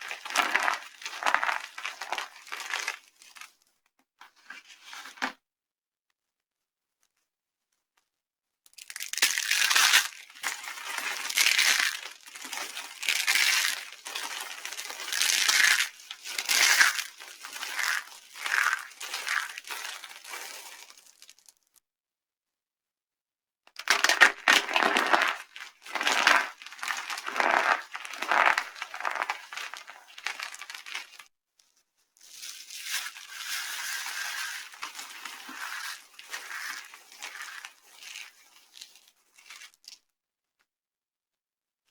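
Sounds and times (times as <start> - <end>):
dry soap crunching: 0.0 - 3.5, 8.8 - 21.5, 23.8 - 31.3, 32.3 - 39.8.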